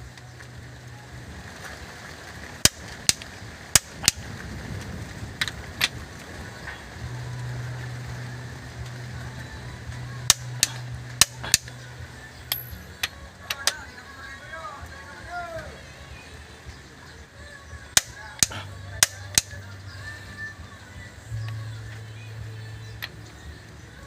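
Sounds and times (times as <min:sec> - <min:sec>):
hand tools clinking on metal: 0:12.5 - 0:13.8.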